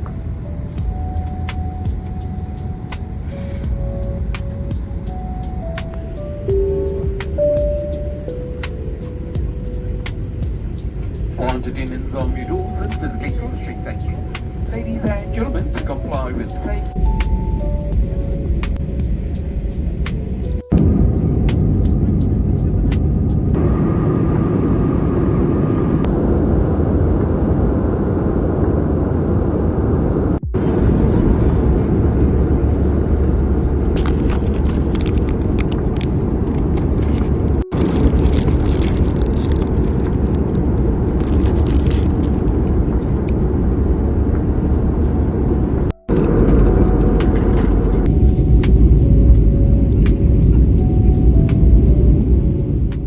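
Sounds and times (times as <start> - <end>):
airliner cabin engine and airflow rumble: 0.0 - 53.0.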